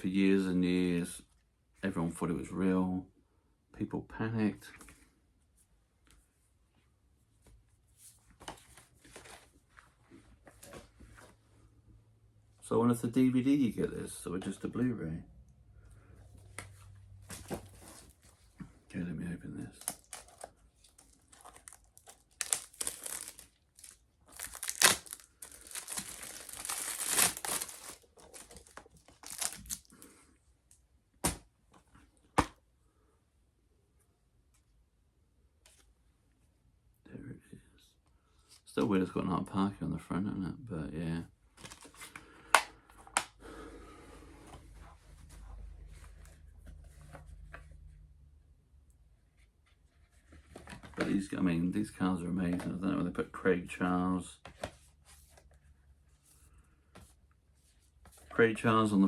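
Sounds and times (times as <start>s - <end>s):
cardboard and paper rustling: 8.1s - 11.4s, 16.6s - 18.8s, 19.6s - 30.1s, 49.4s - 51.4s
packaging crinkling and tearing: 19.7s - 30.0s.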